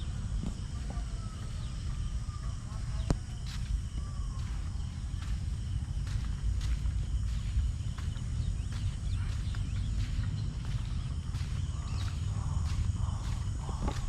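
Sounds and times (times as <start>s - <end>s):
low rumble: 0.0s - 14.0s
faint bird calls: 8.0s - 14.0s.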